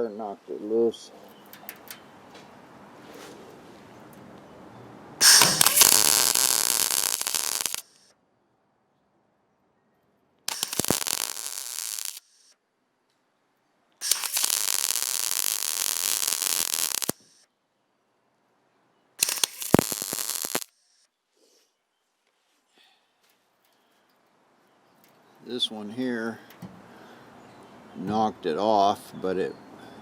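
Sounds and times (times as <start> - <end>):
welder crackling: 5.2 - 8.0, 10.5 - 12.5, 14.0 - 17.4, 19.2 - 20.7
sharp welding pops: 5.2 - 8.1, 10.5 - 12.6, 14.0 - 17.4, 19.2 - 21.0.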